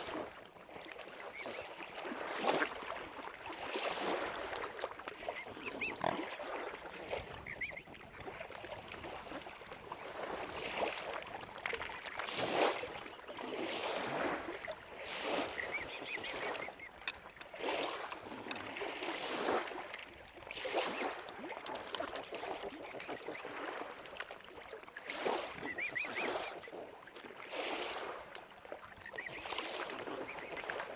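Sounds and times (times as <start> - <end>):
waterfowl calling: 5.2 - 7.9, 15.2 - 17.7, 25.6 - 26.7.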